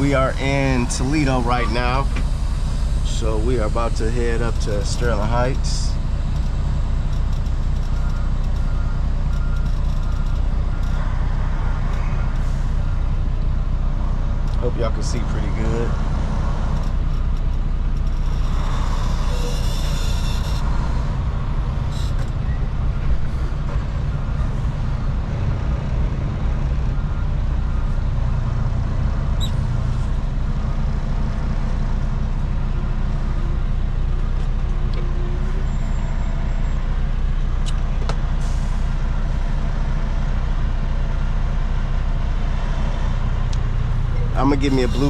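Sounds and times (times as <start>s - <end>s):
diesel engine rumble: 0.0s - 45.0s.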